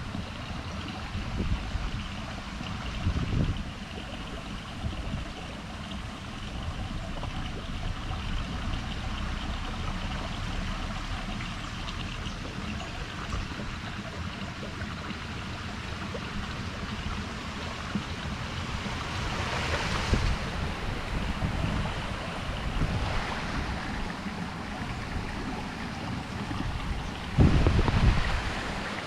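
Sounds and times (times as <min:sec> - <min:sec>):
wind rumbling on microphone: 0:00.0 - 0:15.2, 0:15.8 - 0:29.0
water rushing: 0:00.0 - 0:29.0
water splash: 0:17.3 - 0:29.0.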